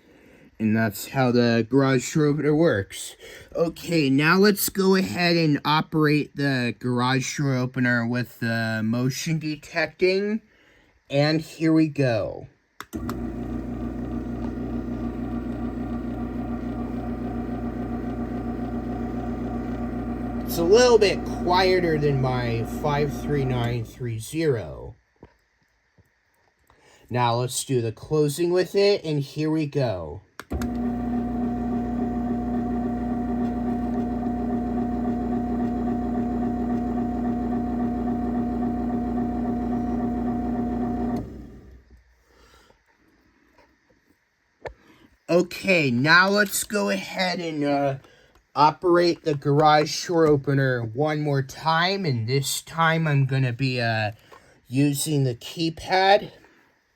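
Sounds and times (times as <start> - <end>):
garage door opener humming: 13.0 - 24.0, 30.5 - 41.8.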